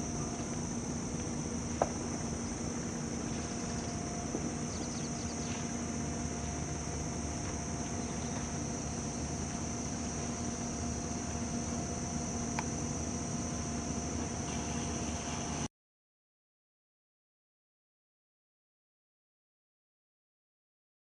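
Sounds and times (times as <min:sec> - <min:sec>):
machinery hum with high whine: 0:00.0 - 0:15.7.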